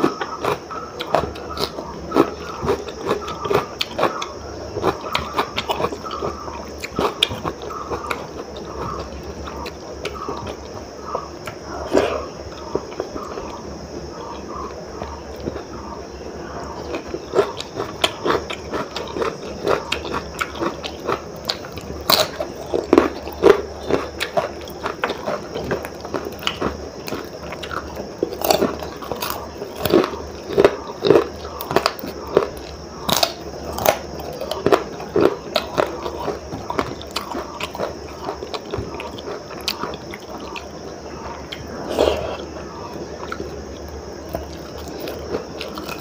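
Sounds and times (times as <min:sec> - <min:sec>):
crunchy chewing: 0:00.0 - 0:46.0.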